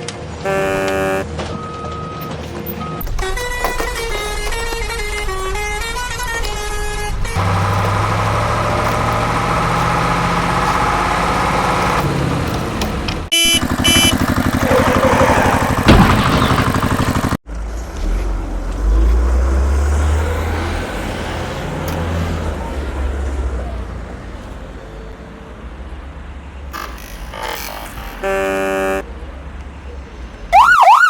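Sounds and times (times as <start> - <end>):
engine hum: 0.0 - 27.3
low engine rumble: 0.4 - 26.7
short high tones: 0.5 - 1.3
fast engine rattle: 3.0 - 18.2.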